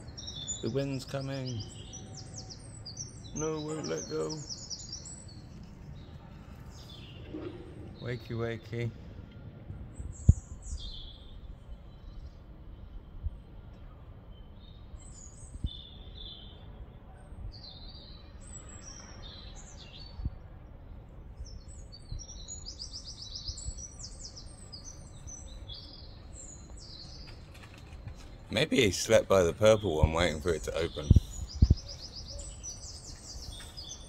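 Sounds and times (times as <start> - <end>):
birds chirping: 0.0 - 34.0
bird trill: 22.0 - 34.0.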